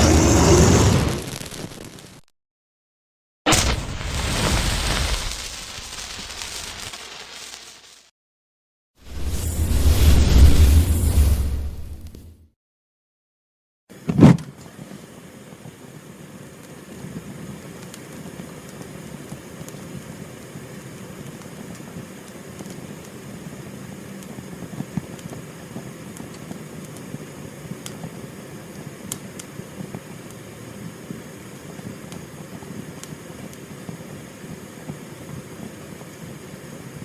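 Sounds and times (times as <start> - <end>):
fire rumbling: 0.0 - 2.2, 3.5 - 7.6, 9.0 - 12.3
fire crackles: 0.0 - 2.3, 3.5 - 8.1, 9.1 - 12.2.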